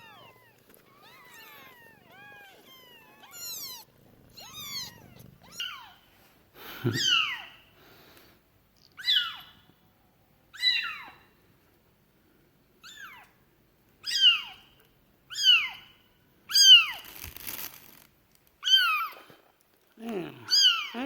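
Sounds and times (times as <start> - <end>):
kitten mewing: 0.0 - 6.0, 6.9 - 7.5.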